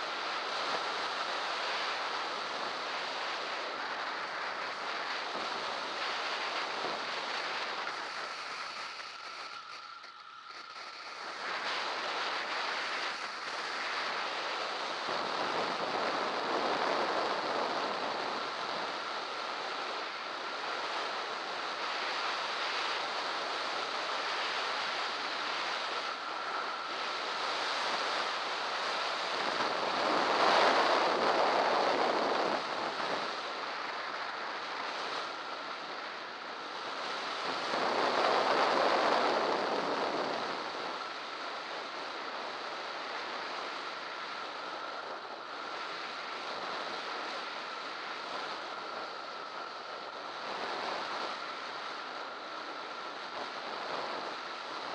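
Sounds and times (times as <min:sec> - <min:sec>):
wind rushing over microphone: 0:00.0 - 0:54.9.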